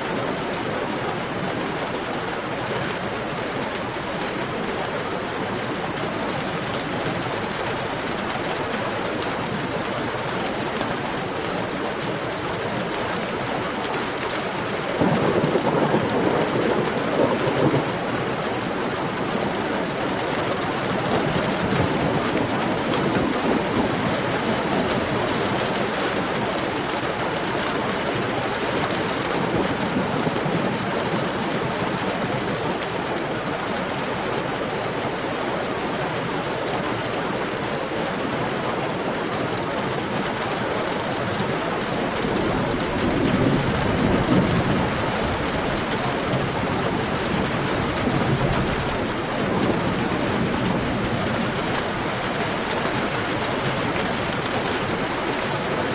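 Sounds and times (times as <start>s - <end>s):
heavy rain: 0.0s - 55.9s
thunder rumbling: 14.8s - 34.2s, 41.1s - 55.9s.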